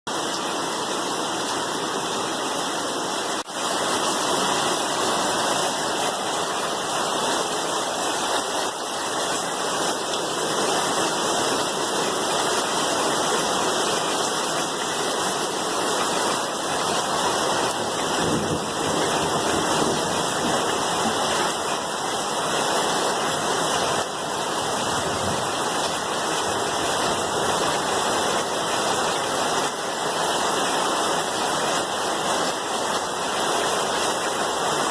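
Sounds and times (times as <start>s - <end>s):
heavy rain: 0.1s - 34.9s.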